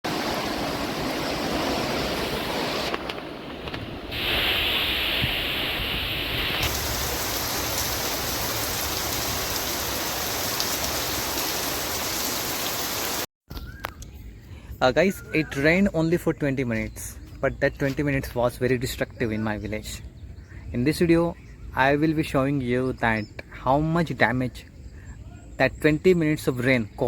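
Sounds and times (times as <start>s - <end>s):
heavy rain falling: 0.1s - 13.3s.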